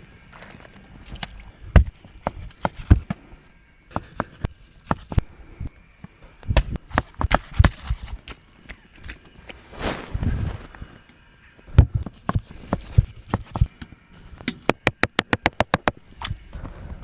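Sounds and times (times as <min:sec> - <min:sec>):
sharp knocks and thuds: 0:01.7 - 0:03.2, 0:06.4 - 0:08.2, 0:11.7 - 0:13.7.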